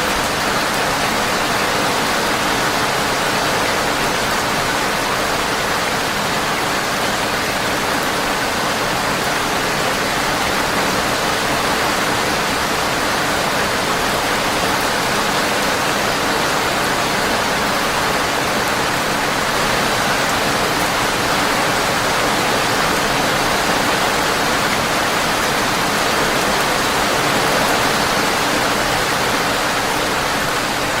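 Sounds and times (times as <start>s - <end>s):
steady rain: 0.0s - 31.0s.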